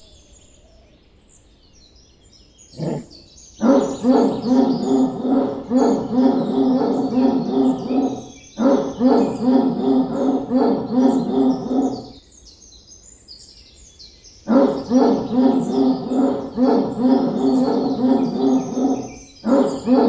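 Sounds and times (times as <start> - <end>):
birds chirping faintly: 0.0 - 20.0
dog barking: 2.8 - 12.2, 14.5 - 20.0.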